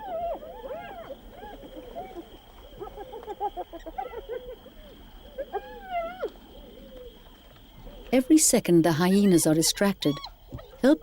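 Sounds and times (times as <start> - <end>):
hyenas giggling and whooping: 0.0 - 7.2.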